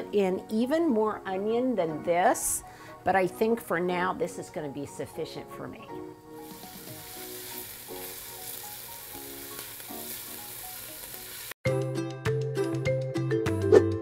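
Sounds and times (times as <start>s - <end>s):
soft background music: 0.0s - 14.0s
onions sizzling in oil: 6.4s - 11.6s.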